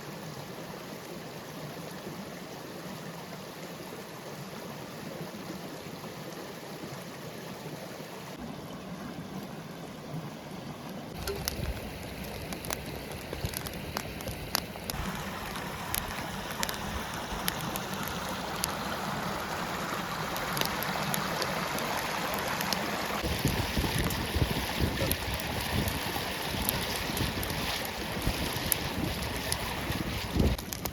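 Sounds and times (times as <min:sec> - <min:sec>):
stream running: 0:00.0 - 0:30.9
sharp clicks and crackles: 0:11.2 - 0:18.8, 0:25.0 - 0:30.9
wind on microphone: 0:23.2 - 0:30.9.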